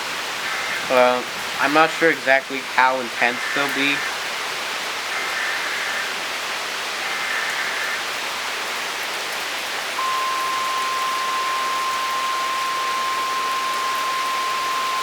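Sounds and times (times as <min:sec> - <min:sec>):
heavy rain: 0:00.0 - 0:15.0
high electronic tone: 0:10.0 - 0:15.0.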